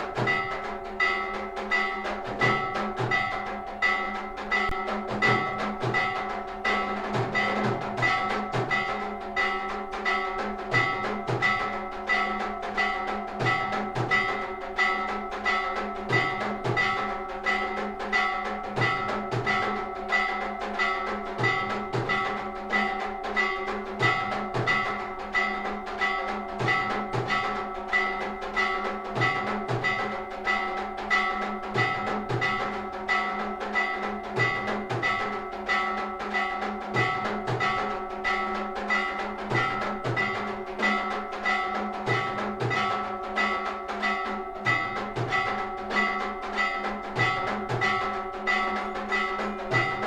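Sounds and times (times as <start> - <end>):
drum beats: 0.0 - 50.0
metal bells ringing: 0.0 - 50.0.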